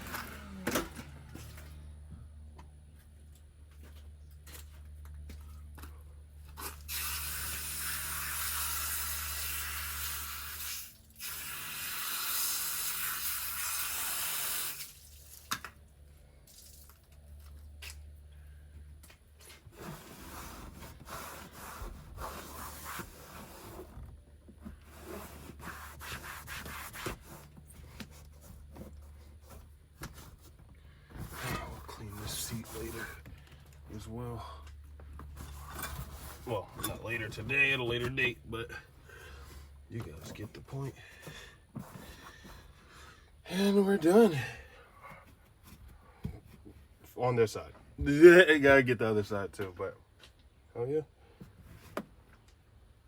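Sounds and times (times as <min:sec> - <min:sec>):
brush scrubbing: 0:19.7 - 0:24.0, 0:24.7 - 0:30.6, 0:31.2 - 0:33.2.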